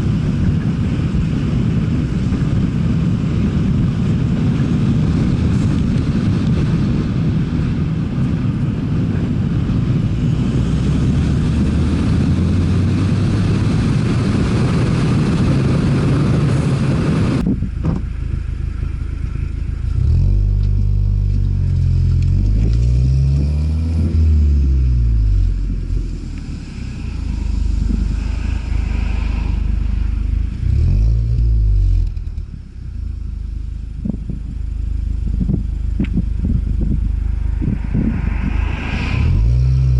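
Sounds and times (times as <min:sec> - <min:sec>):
car engine running: 0:00.0 - 0:39.9
road noise rush: 0:00.0 - 0:39.9
car engine revving: 0:09.2 - 0:39.9.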